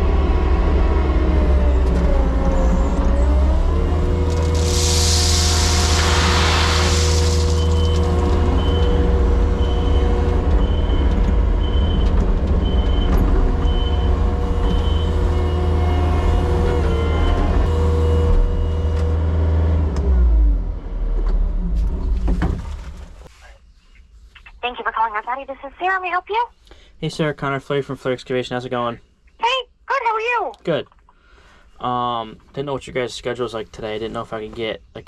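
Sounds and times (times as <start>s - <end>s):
vehicle engine droning: 0.0s - 22.4s
hiss: 4.5s - 8.0s.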